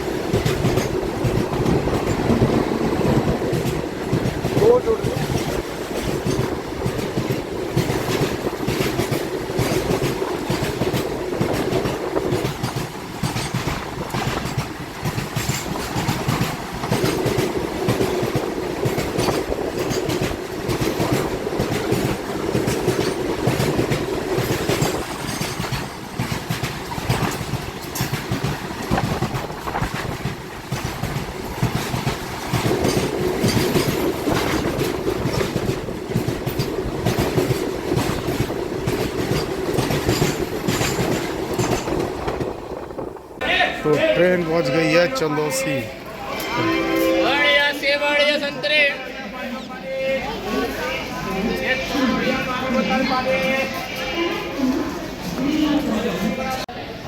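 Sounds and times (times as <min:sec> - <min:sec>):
train wheels clattering on rails: 0:00.0 - 0:44.5.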